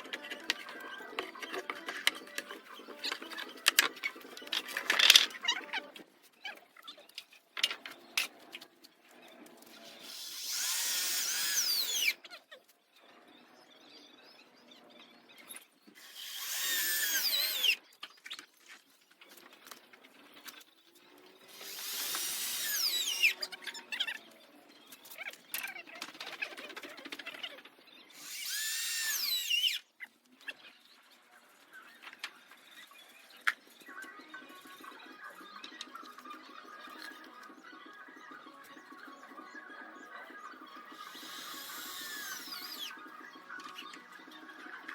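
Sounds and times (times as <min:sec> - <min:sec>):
power drill driving screws: 0:10.0 - 0:12.2, 0:16.0 - 0:17.8, 0:21.5 - 0:23.4, 0:28.2 - 0:29.8, 0:41.0 - 0:43.0.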